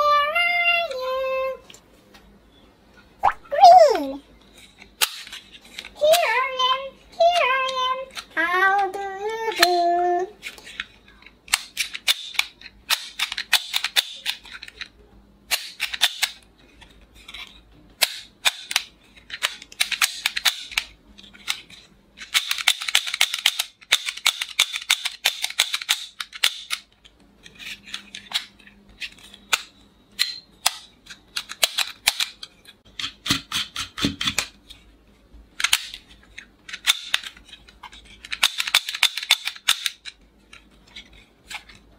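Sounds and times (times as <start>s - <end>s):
toy revolver clicking: 38.3s - 40.1s.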